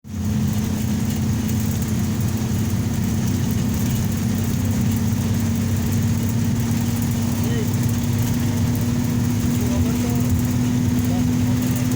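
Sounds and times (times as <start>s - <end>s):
highway traffic hum: 0.0s - 11.9s.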